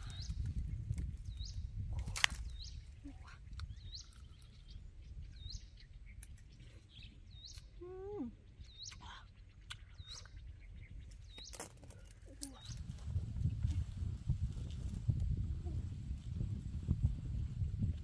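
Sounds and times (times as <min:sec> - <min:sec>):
steady low rumble: 0:00.0 - 0:18.0
bird chirping: 0:02.4 - 0:12.9.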